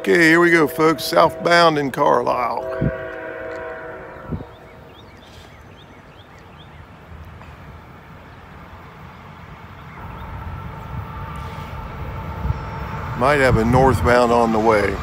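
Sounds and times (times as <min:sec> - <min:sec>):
train horn: 0:00.0 - 0:04.9
freight train rumble: 0:00.0 - 0:15.0
bird chirps: 0:04.1 - 0:07.0.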